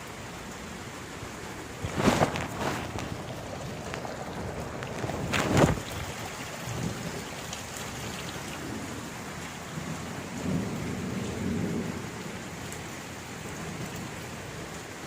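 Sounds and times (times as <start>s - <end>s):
steady rain falling: 0.0s - 15.0s
thunder rumble: 1.6s - 12.4s.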